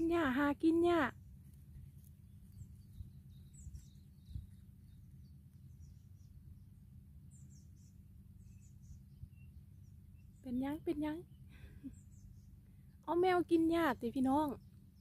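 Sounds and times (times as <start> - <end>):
steady low rumble: 0.0 - 13.1
bird chirps: 2.2 - 13.2.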